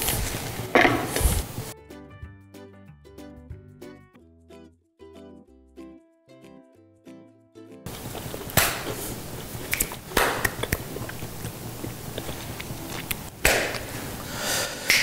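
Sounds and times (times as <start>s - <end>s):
room hiss: 0.0s - 1.7s, 7.9s - 15.0s
person chewing crisp food: 7.9s - 13.9s.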